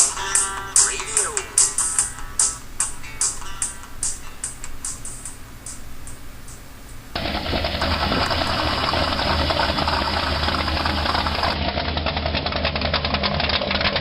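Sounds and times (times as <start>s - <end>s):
song cymbal strokes: 0.0s - 7.2s
truck engine idling: 0.0s - 14.0s.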